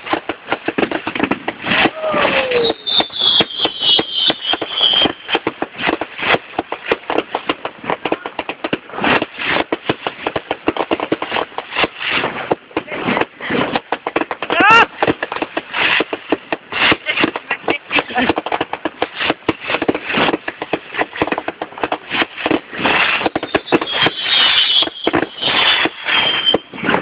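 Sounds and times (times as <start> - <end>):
fireworks crackling and popping: 0.0 - 27.0
falling whistle: 2.2 - 5.3, 23.4 - 26.7.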